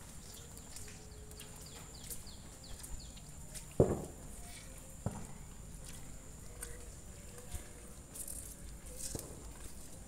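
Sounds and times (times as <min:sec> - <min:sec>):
bird chirping: 0:00.0 - 0:03.4.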